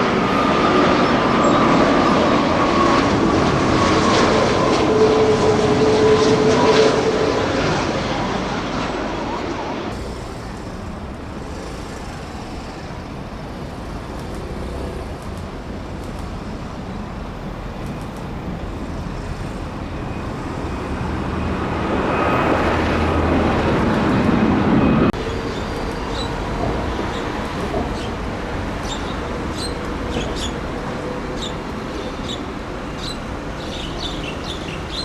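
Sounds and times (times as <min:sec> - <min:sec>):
jet airliner rumble with whine: 0:00.0 - 0:35.0.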